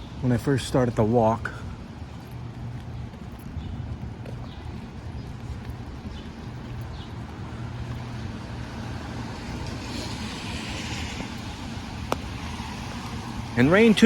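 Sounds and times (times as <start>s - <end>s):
car tyres hissing on wet road: 9.1s - 13.5s.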